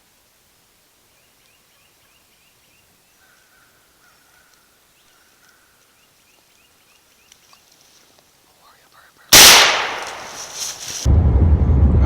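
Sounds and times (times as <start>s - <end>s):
light hiss: 0.0s - 11.1s
faint bird calls: 1.1s - 9.3s.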